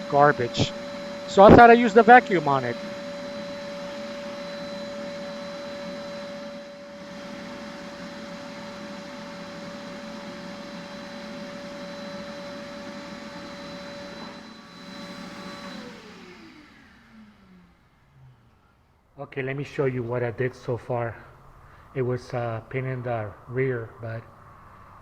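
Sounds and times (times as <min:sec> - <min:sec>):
vacuum cleaner motor whining: 0:00.0 - 0:19.0.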